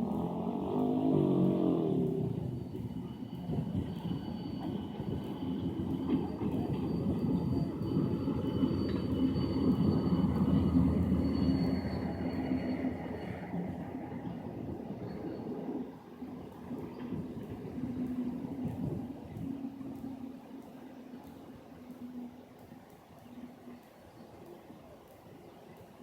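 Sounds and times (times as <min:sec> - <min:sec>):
train rolling by: 0:00.0 - 0:26.0.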